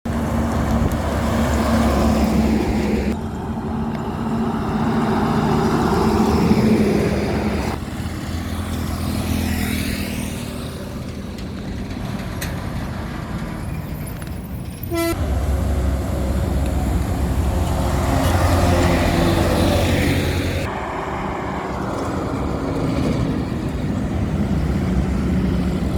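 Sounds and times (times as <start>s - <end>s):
trucks passing on highway: 0.1s - 25.9s
vehicle engines running: 0.1s - 25.9s
short horn toot: 14.9s - 15.3s.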